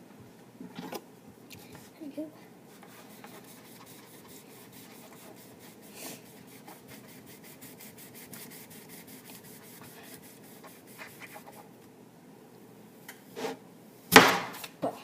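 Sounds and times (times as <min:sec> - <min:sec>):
faint rapid scratching: 0:02.8 - 0:11.7.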